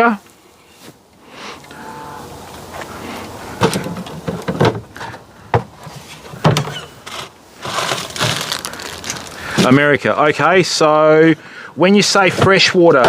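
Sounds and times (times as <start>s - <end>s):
low background hiss: 0.0s - 13.0s
sharp knocks and clunks: 3.5s - 8.4s.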